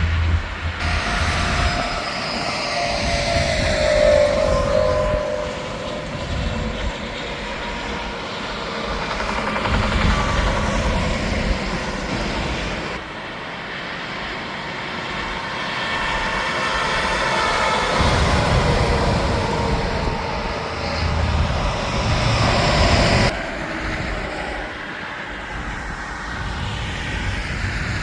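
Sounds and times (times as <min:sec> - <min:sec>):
highway traffic rush: 0:00.0 - 0:28.0.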